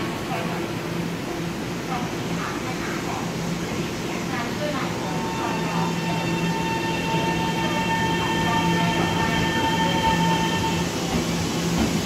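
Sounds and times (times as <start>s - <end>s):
steady high-pitched tones: 4.9s - 11.2s
electric train pulling out: 5.2s - 11.9s.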